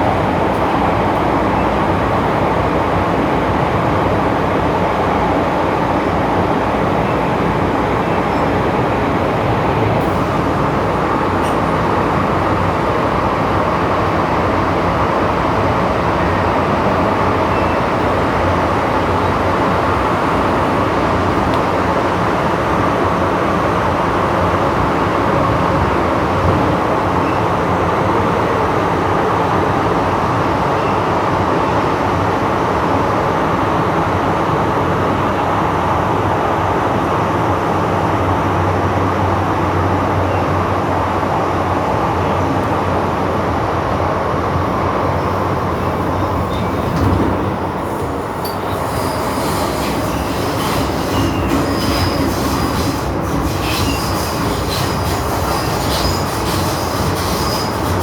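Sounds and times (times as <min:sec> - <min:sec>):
train rumbling on rails: 0:00.0 - 0:58.0
rail clicks: 0:08.1 - 0:31.5, 0:43.8 - 0:58.0
high-pitched wheel squeal: 0:48.4 - 0:58.0.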